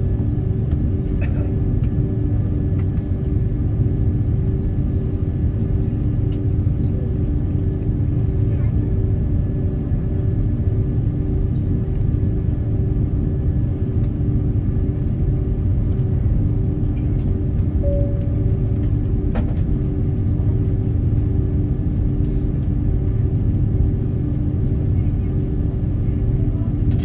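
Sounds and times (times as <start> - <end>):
airliner cabin engine rumble: 0.0 - 27.0
brief tone: 17.8 - 19.2.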